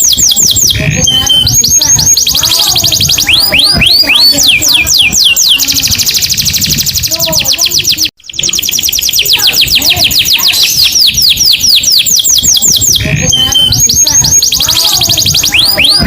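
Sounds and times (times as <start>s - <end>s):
canary singing: 0.0s - 16.0s.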